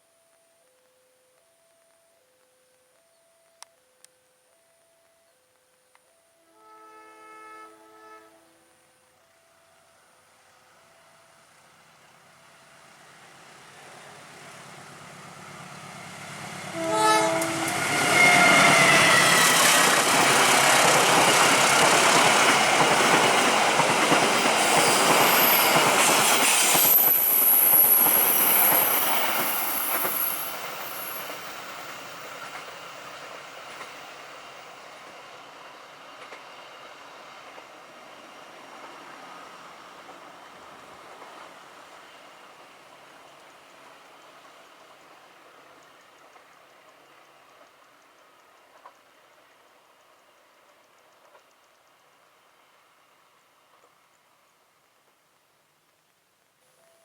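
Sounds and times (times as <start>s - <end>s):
train horn blast: 6.4s - 8.8s, 16.5s - 19.9s
train wheels rumbling on rail: 11.4s - 52.6s
high wheel squeal: 17.6s - 21.0s.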